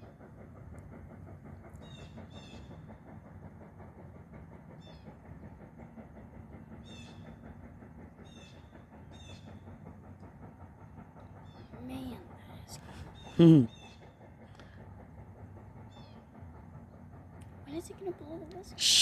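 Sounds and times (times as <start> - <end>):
distant steam train rumble: 0.0 - 19.0
chickadee calling: 18.8 - 19.0.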